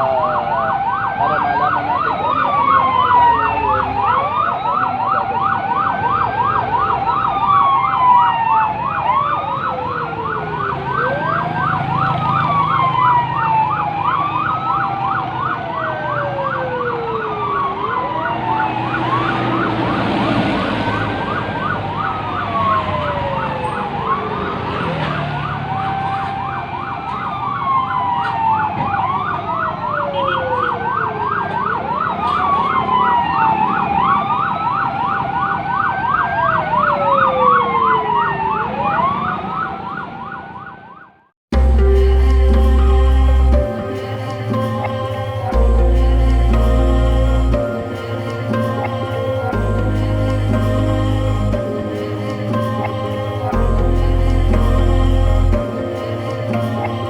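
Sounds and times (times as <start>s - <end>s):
siren yelping: 0.0s - 40.8s
sirens wailing: 0.0s - 40.9s, 41.5s - 57.0s
low vehicle rumble: 41.6s - 57.0s.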